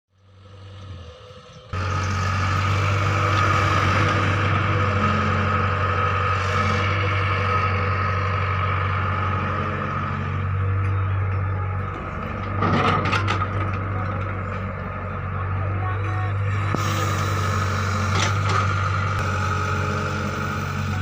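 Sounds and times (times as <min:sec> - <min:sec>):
vehicle engine running: 0:00.1 - 0:21.0.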